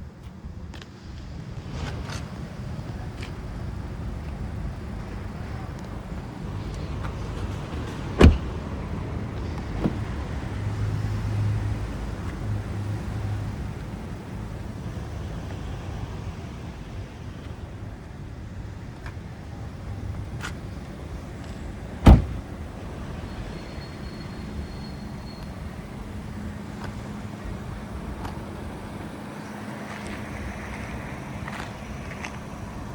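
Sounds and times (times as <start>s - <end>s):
sharp thumps: 8.2s - 8.5s, 22.0s - 22.5s.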